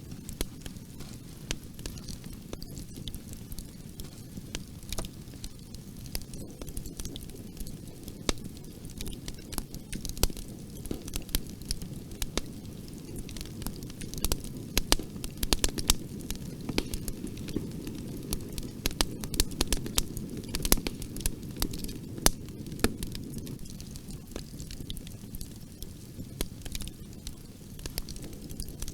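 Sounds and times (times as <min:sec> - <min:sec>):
burning wood crackling and popping: 0:00.0 - 0:28.9
roar of bonfire flames: 0:00.0 - 0:28.9.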